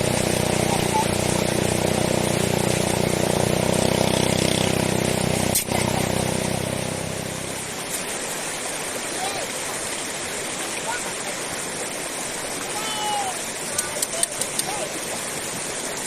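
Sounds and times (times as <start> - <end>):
engine running: 0.0 - 8.2
rushing water: 0.0 - 16.0.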